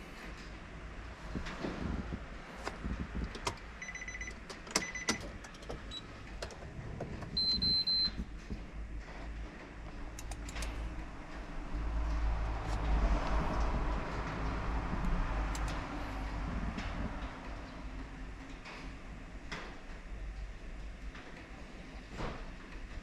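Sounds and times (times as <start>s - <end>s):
long high steady beep: 3.8s - 5.2s, 7.4s - 8.2s
short electronic beeps: 3.8s - 5.2s, 7.4s - 8.2s.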